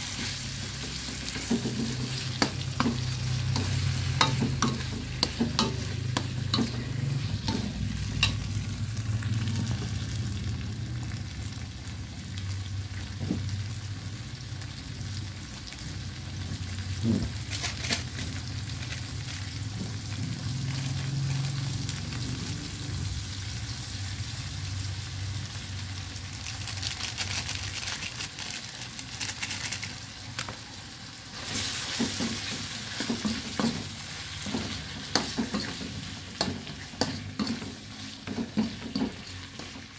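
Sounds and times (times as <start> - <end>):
meat sizzling in a pan: 0.0 - 39.9
spatula scraping a pan: 31.4 - 39.9.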